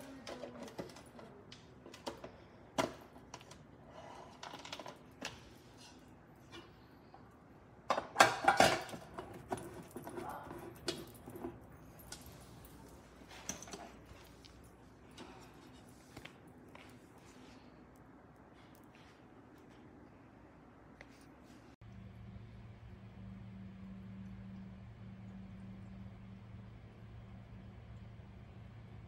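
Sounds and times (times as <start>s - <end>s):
objects clattering: 0.0s - 17.6s.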